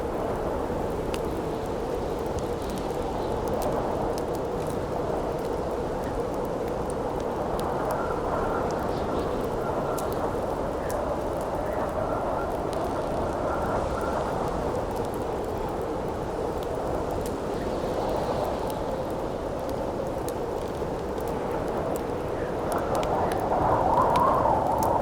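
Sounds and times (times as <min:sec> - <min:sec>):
campfire popping and crackling: 0:00.0 - 0:25.0
wind howling: 0:20.6 - 0:25.0.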